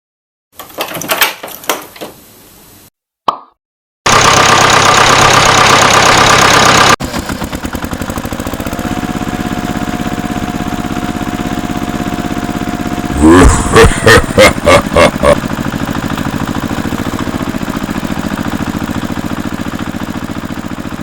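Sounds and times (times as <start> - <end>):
engine throttle bursts: 4.1 - 19.8
small engine running: 4.1 - 21.0
loud harsh noise: 13.1 - 15.4.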